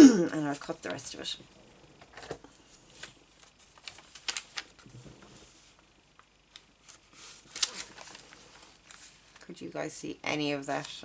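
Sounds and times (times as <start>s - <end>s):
paper rustling: 2.1s - 5.9s, 6.5s - 9.4s.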